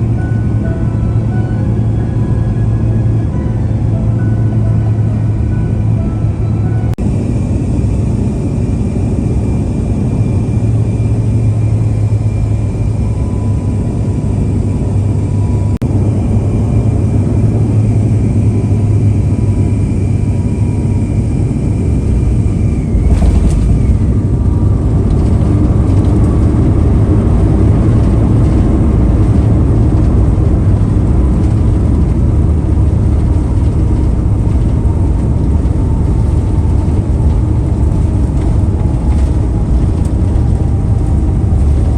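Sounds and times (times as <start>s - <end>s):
faint high whine: 0.0s - 26.1s
cabin engine rumble: 0.0s - 41.9s.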